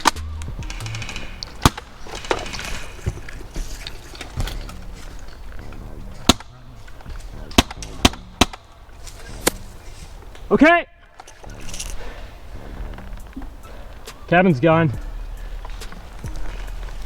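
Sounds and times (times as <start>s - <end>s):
airsoft gun shots: 7.6s - 8.7s.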